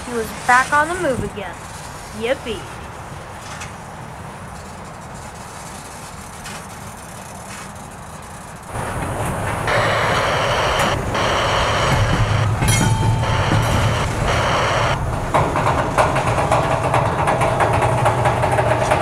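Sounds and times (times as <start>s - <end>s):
dense rushing noise: 0.0s - 19.0s
freight train rumbling on rails: 8.4s - 19.0s.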